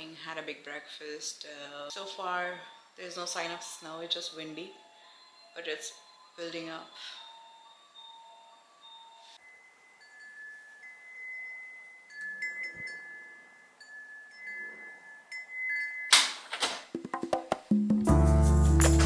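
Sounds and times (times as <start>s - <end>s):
chimes ringing: 2.3s - 16.2s.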